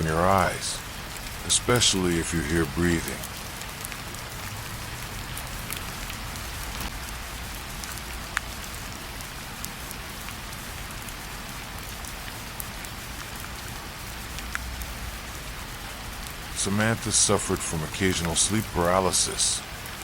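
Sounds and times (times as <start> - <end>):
rain drops ticking on hard surface: 0.0 - 20.0.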